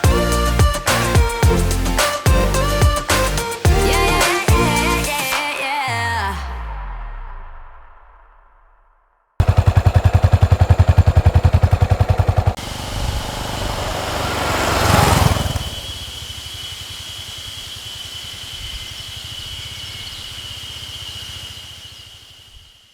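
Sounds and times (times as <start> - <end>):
vehicle passing: 9.4 - 22.5
motorcycle engine idling: 9.4 - 22.9
steady low hum: 9.4 - 22.9.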